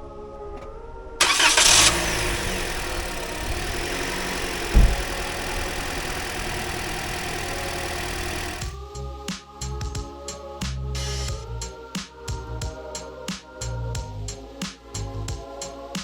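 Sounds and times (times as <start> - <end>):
car engine starting and idling: 0.4 - 8.8
low thump: 2.6 - 8.7.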